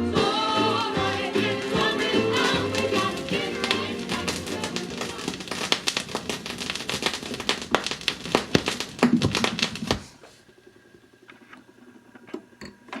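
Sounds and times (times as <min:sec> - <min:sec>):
irregular clicks and taps: 0:01.6 - 0:10.1.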